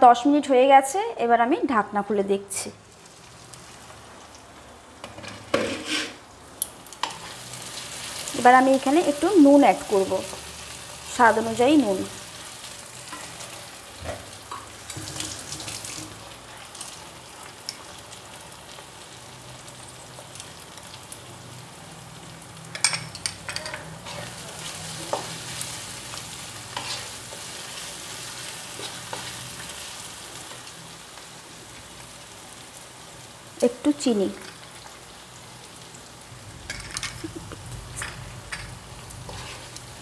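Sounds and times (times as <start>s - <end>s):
food sizzling in oil: 2.5s - 40.0s
wooden spatula scraping wok: 5.1s - 6.3s, 13.0s - 16.2s, 24.0s - 30.6s, 38.0s - 40.0s.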